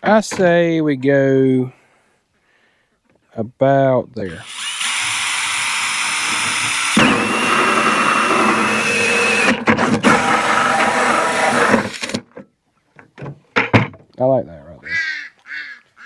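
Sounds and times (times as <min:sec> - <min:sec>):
power drill hole saw cutting plastic: 0:04.3 - 0:12.2.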